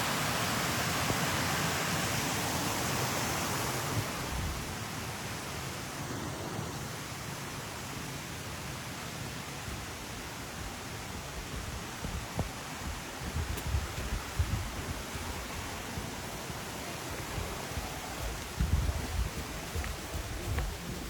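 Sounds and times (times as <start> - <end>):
steady rushing noise: 9.7 - 21.0.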